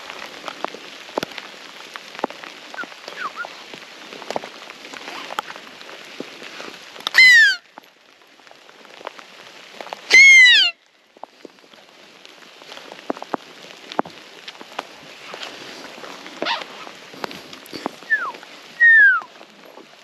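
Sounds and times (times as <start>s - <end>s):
light rain pattering: 0.0s - 20.0s.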